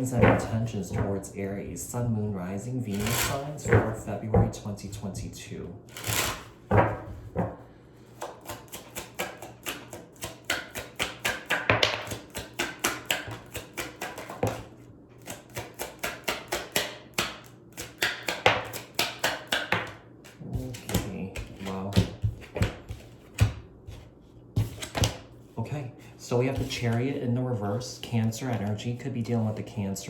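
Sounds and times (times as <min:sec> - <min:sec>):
cards being shuffled: 0:02.9 - 0:04.0, 0:05.9 - 0:07.5, 0:17.8 - 0:25.2.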